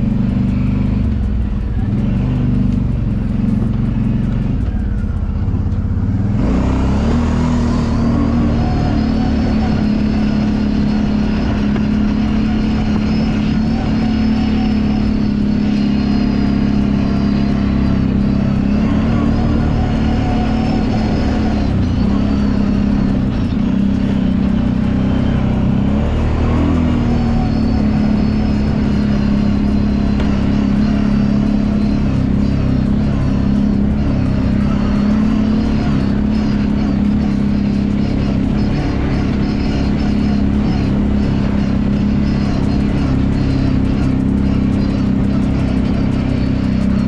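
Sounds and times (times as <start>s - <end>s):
atv engine running: 0.0s - 47.0s.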